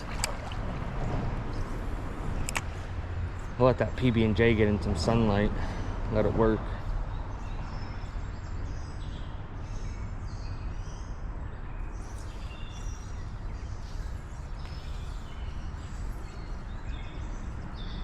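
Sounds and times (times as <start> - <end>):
steady low rumble: 0.0 - 9.2
songbirds chirping: 0.0 - 18.0.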